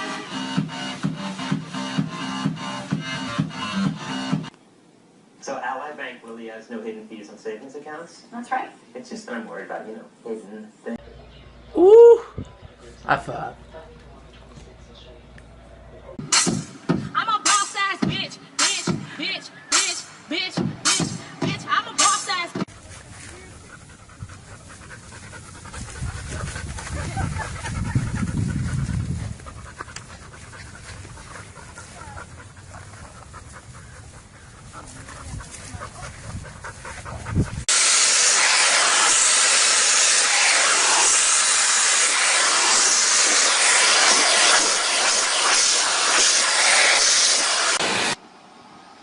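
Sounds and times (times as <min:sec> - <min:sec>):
low rumbling: 0:22.7 - 0:37.7
loud steady hiss: 0:37.7 - 0:48.2.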